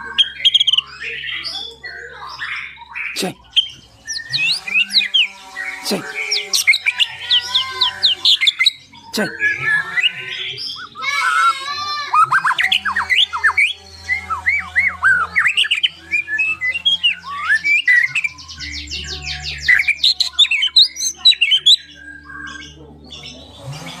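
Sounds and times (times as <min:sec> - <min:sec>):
bird singing whistled song: 0:00.0 - 0:11.4, 0:12.1 - 0:23.5.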